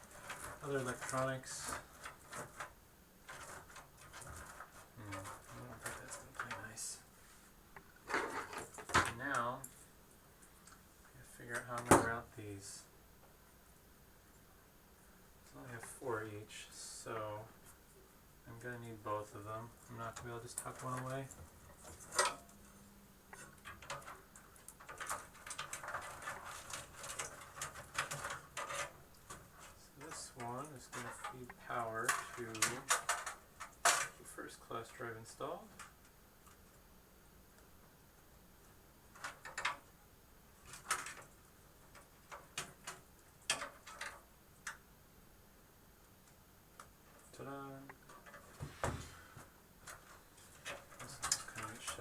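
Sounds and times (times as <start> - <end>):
cables rustling: 0.0 - 12.7, 18.5 - 36.8, 46.8 - 52.0.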